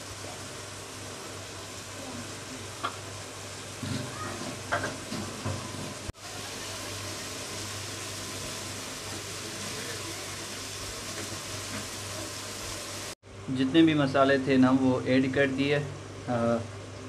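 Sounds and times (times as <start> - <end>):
vegetables sizzling in oil: 0.0 - 13.2.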